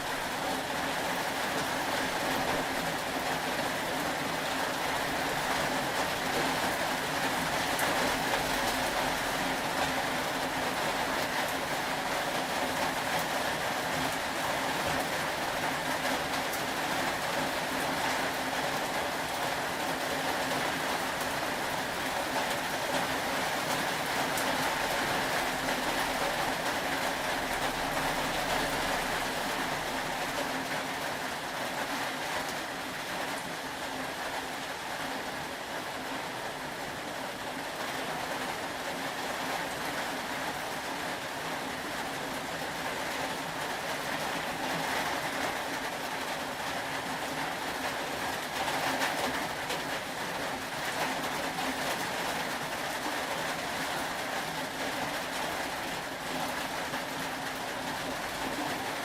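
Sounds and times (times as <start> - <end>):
faint rain patter: 0.0 - 59.0
steady rain hiss: 0.0 - 59.0.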